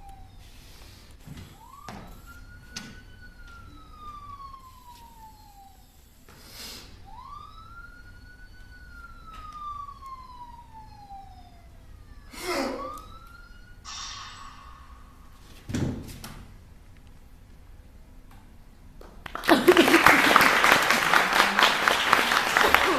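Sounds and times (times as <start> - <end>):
police siren wailing: 0.0 - 6.3, 6.9 - 15.5, 19.9 - 22.9
short hiss: 13.9 - 15.2
thump: 15.6 - 16.4.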